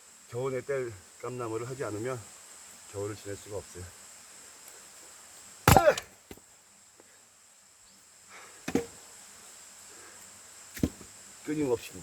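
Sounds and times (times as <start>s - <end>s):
high insect drone: 0.0s - 12.0s
axe splitting logs: 5.6s - 6.4s, 8.7s - 9.0s, 10.8s - 11.1s.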